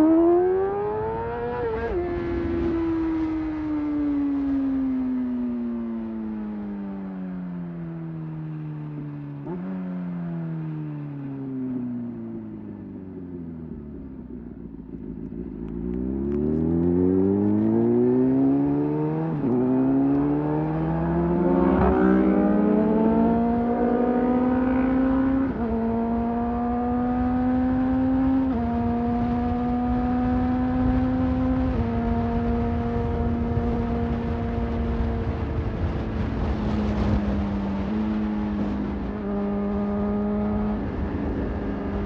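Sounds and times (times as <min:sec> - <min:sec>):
motorcycle engine shifting gears: 0:12.2 - 0:42.0.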